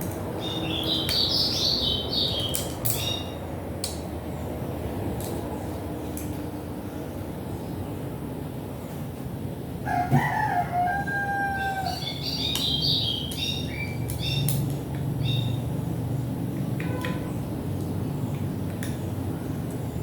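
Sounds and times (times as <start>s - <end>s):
rooster crowing: 9.8s - 12.2s.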